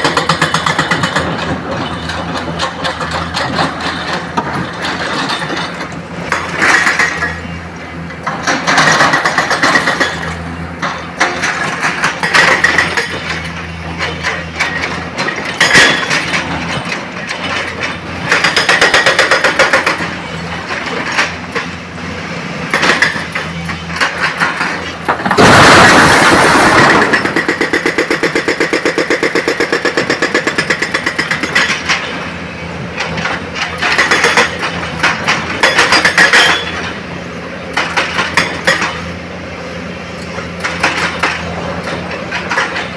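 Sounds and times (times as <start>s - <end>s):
excavator engine running: 0.0s - 42.9s
rocks clattering and crashing: 24.0s - 28.2s.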